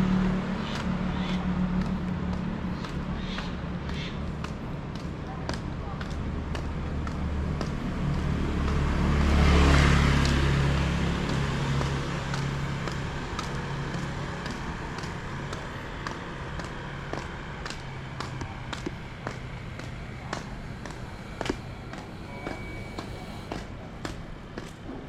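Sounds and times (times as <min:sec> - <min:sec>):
footsteps: 0:00.8 - 0:25.0
vehicle passing by: 0:06.2 - 0:25.0.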